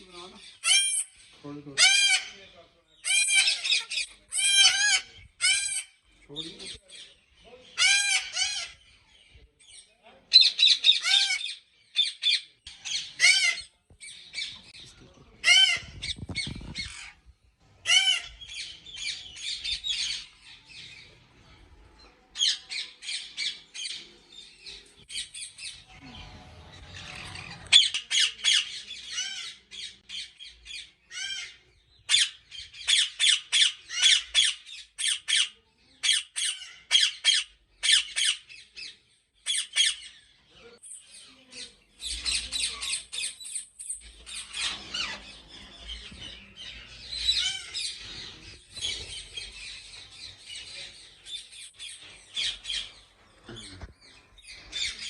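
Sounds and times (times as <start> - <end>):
parakeets squawking: 0.4 - 6.0, 7.7 - 8.8, 10.4 - 13.7, 15.4 - 17.2, 17.8 - 21.0, 42.1 - 53.0.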